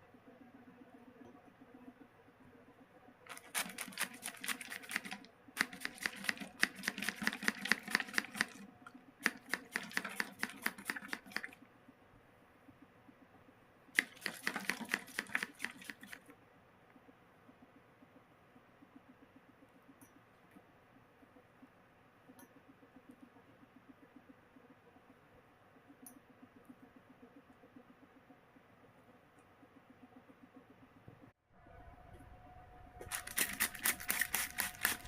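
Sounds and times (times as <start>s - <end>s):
bird beak clicking while drinking: 3.3s - 8.6s, 9.2s - 11.6s.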